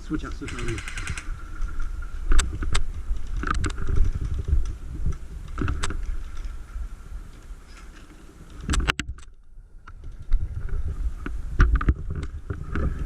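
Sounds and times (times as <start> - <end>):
wind rumble on microphone: 0.0 - 13.0
sharp clicks: 0.2 - 4.5.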